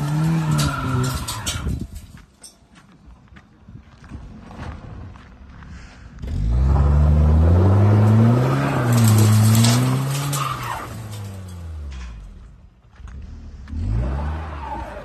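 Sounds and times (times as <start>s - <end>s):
wheels spinning in gravel: 0.0s - 2.2s, 7.8s - 12.1s
car engine revving hard: 6.3s - 10.8s.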